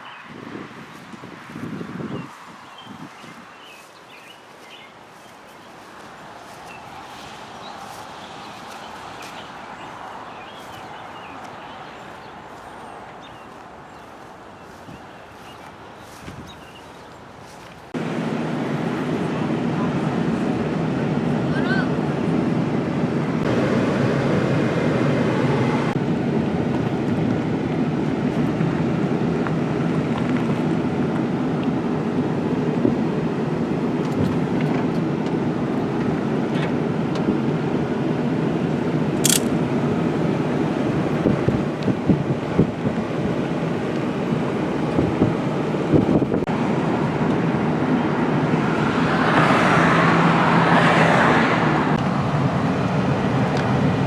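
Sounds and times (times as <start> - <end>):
vehicle road noise: 0.0 - 54.0
sharp click: 39.2 - 39.6.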